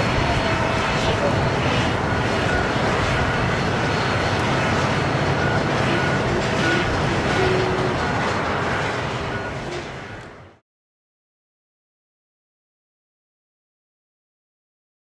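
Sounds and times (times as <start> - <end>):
faint jet engine whine: 0.0 - 10.6
jet engines rumbling: 0.0 - 10.6.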